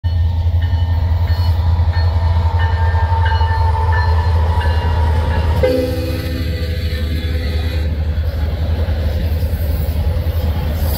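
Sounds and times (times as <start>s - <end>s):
diesel locomotives rumbling: 0.0s - 10.9s
locomotive air horn chord: 5.6s - 8.2s.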